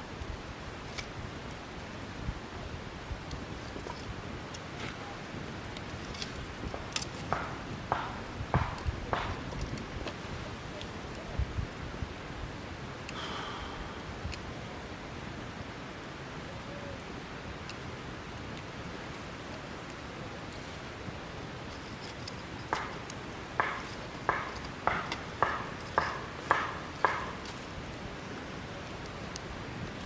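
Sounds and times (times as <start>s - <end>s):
steady low hiss: 0.0s - 30.0s
firewood being chopped: 5.7s - 10.8s, 21.6s - 28.0s.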